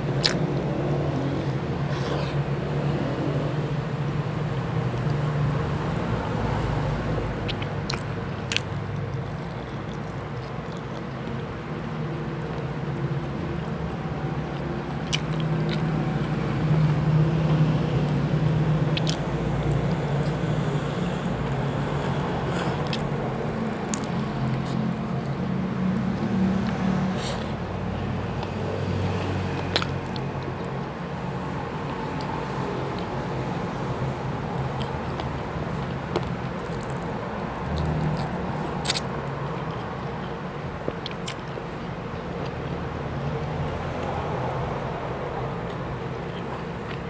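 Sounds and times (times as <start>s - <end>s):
chewing and biting: 0.0s - 3.0s, 6.9s - 44.8s, 45.5s - 47.0s
mouth clicks and smacks: 0.1s - 2.7s, 7.2s - 13.0s, 14.5s - 16.0s, 18.8s - 27.6s, 34.5s - 41.8s.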